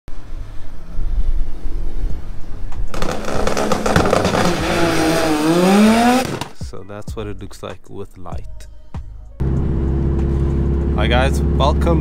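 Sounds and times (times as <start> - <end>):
car engine revving and accelerating: 3.0 - 6.5, 9.4 - 12.0.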